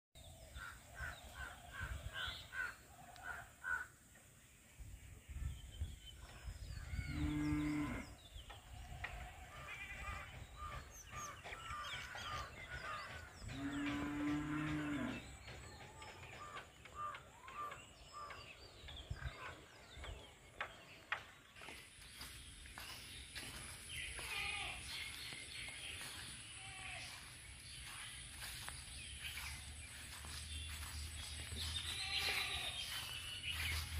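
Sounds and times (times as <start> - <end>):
cow mooing: 7.1 - 8.1, 13.5 - 15.2.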